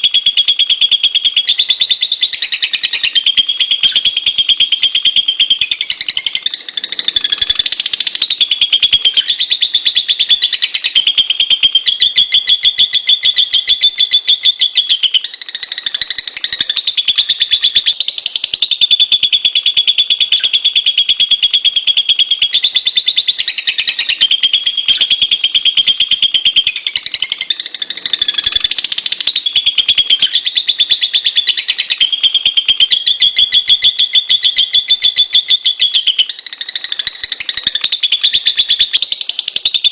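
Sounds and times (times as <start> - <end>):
bird chattering trill: 0.0 - 39.9.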